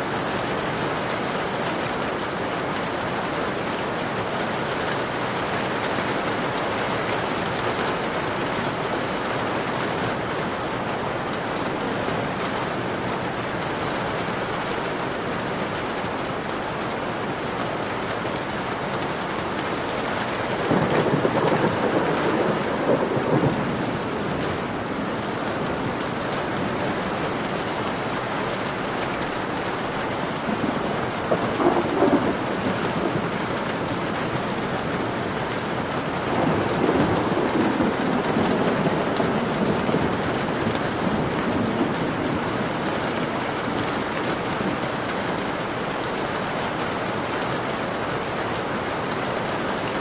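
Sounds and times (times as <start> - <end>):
rain falling on a window: 0.0 - 50.0
low rumble of thunder: 20.6 - 27.5, 30.4 - 33.8, 36.1 - 43.8.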